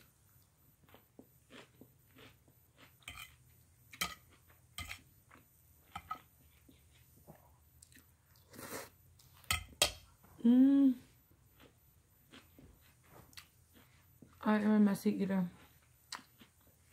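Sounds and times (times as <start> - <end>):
wet chewing of noodles: 0.0 - 5.6, 6.4 - 9.5, 11.4 - 14.4, 15.6 - 16.9
person humming mmm: 10.4 - 11.2.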